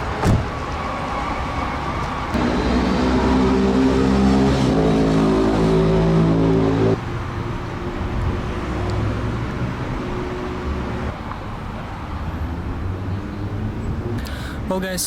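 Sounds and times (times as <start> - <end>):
car engine running: 2.4 - 7.0.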